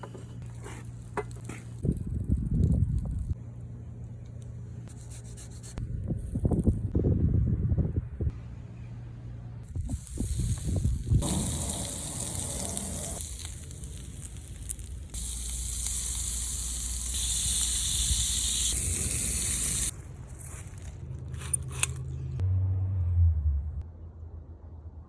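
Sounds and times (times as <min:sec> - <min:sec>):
shrimp sizzling on a grill: 0:09.9 - 0:19.9.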